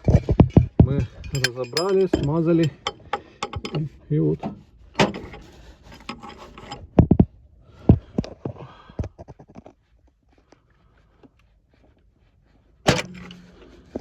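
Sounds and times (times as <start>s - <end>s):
suspension knocks and thumps: 0.0s - 3.8s.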